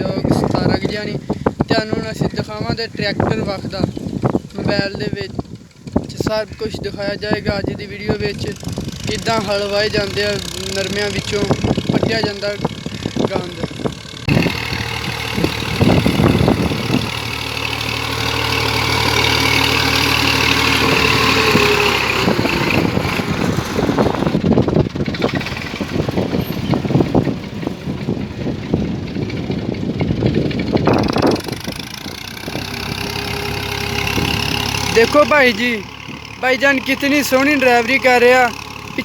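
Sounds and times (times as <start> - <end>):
tractor engine running: 0.0 - 39.0
clattering knocks and rattles: 8.2 - 37.0.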